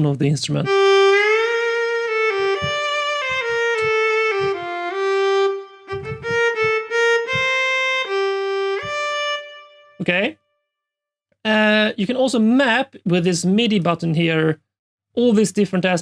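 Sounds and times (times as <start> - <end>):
solo viola legato melody: 0.6 - 10.0.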